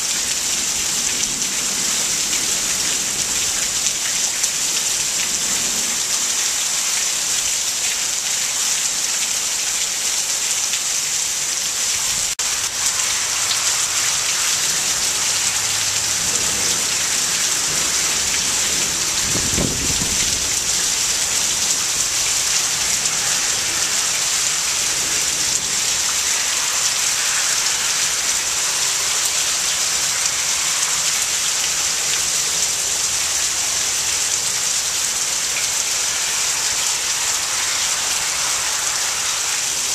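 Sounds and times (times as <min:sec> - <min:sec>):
heavy rain pouring: 0:00.0 - 0:39.9
thunder rumble: 0:12.4 - 0:21.6.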